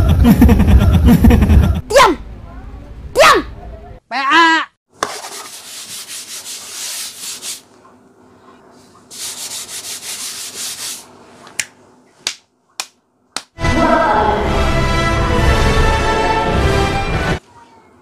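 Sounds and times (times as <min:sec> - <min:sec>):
hands rubbing across a tabletop: 0:05.0 - 0:07.8, 0:08.8 - 0:11.4.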